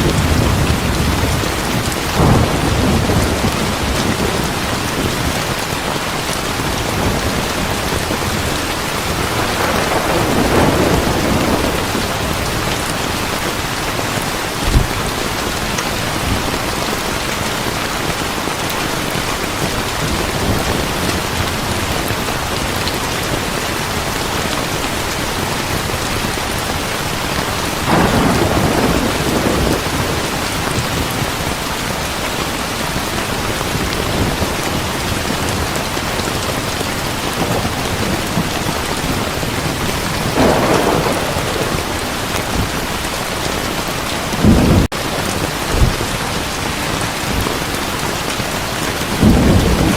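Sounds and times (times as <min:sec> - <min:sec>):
thunder rumbling: 0:00.0 - 0:05.8, 0:06.4 - 0:18.2, 0:27.3 - 0:31.6, 0:33.3 - 0:49.9
heavy rain: 0:00.0 - 0:49.9.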